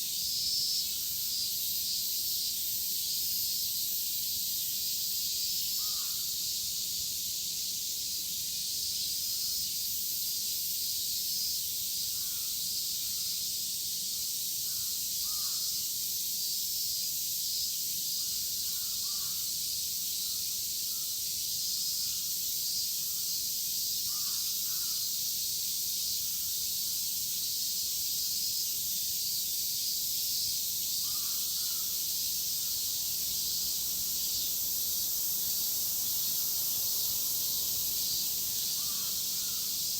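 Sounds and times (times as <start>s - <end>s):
cicadas chorus: 0.0s - 39.9s
crows cawing: 31.1s - 31.9s, 38.8s - 39.8s.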